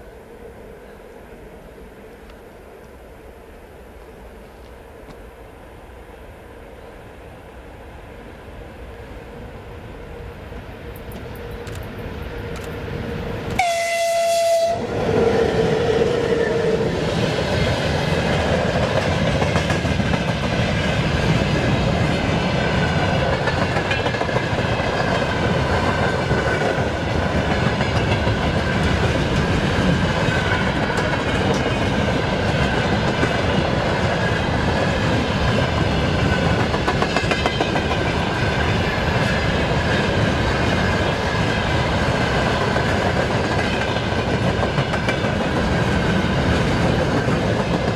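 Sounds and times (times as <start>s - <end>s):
locomotive horn blast: 13.6s - 15.0s
train wheels on rails clacking: 15.0s - 47.9s.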